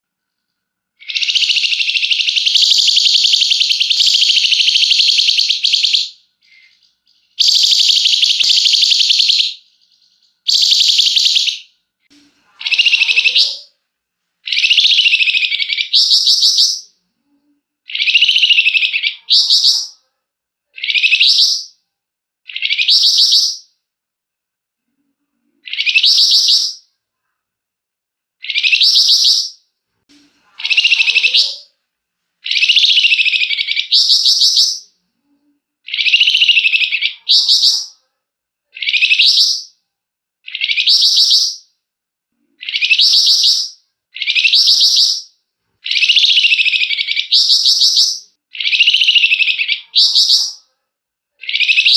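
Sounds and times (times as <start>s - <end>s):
songbird sharp rising phrases: 30.6s - 31.6s.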